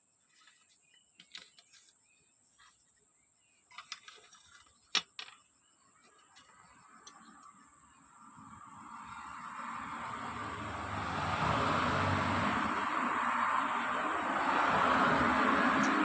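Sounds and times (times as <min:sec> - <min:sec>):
light clicks and taps of small parts: 0:06.0 - 0:07.6.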